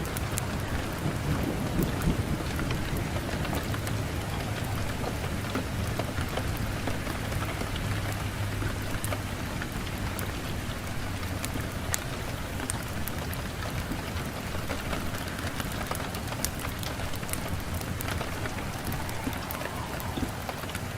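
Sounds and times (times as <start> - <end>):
burning logs crackling: 0.0 - 20.9
fire hissing and rumbling: 8.8 - 20.9.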